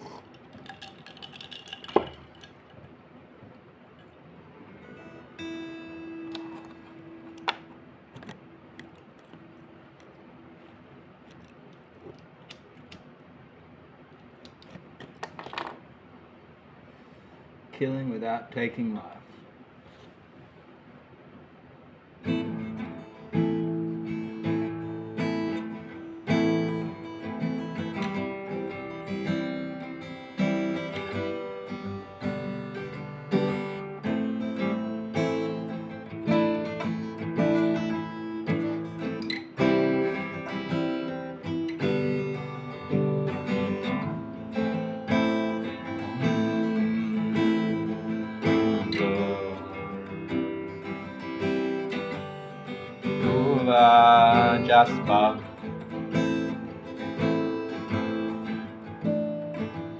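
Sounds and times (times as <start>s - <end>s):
acoustic guitar chords: 3.8s - 10.7s, 22.1s - 59.9s.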